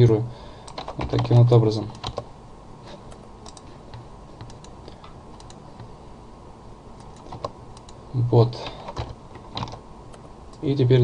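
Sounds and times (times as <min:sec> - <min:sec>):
faint background hiss: 0:00.0 - 0:11.0
computer keyboard clicks: 0:00.6 - 0:02.2, 0:03.1 - 0:03.7, 0:05.4 - 0:05.6, 0:07.0 - 0:08.0, 0:08.8 - 0:10.7.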